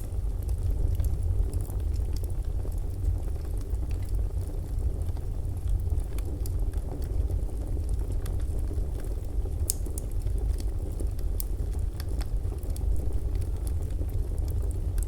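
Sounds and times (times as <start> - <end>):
fire rumbling: 0.0 - 15.0
burning wood popping and snapping: 9.6 - 15.0.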